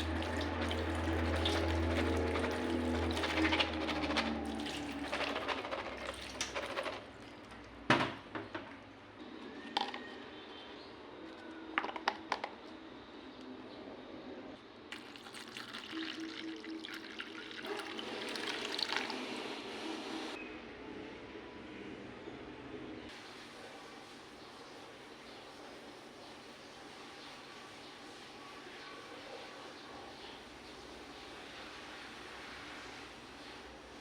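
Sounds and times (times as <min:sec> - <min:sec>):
tap water pouring into bowl: 0:00.0 - 0:07.5, 0:14.9 - 0:19.2.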